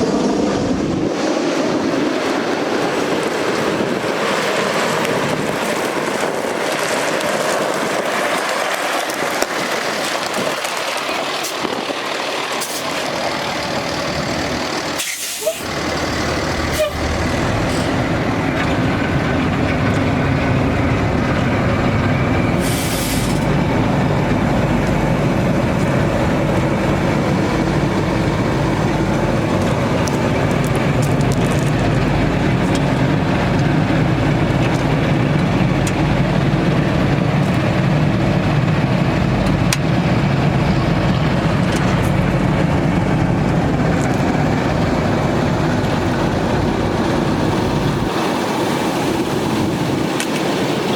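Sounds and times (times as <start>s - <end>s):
diesel truck engine running: 0.0s - 50.9s
short hiss: 15.0s - 15.6s, 22.6s - 23.4s.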